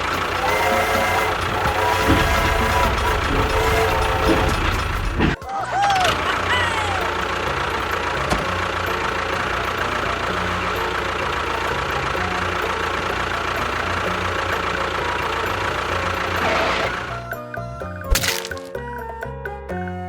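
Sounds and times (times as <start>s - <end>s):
machine motor whining: 0.0s - 10.6s.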